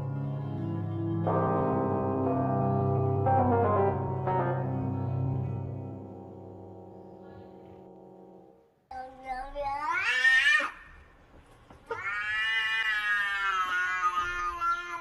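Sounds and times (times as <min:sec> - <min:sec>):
cat yowling: 0:11.9 - 0:15.0.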